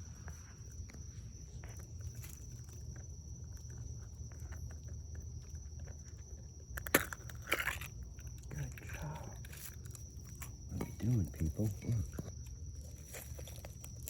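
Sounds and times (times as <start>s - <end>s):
night insects droning: 0.0s - 14.0s.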